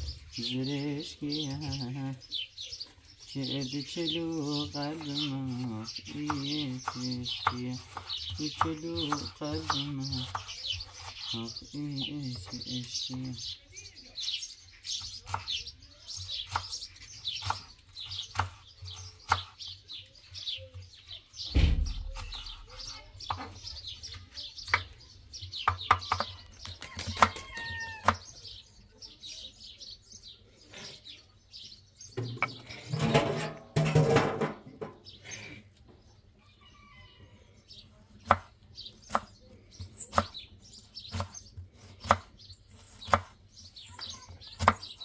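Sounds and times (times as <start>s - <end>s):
small birds chirping: 0.0s - 45.0s
low thud: 21.5s - 22.5s
sharp knocks: 21.5s - 22.6s.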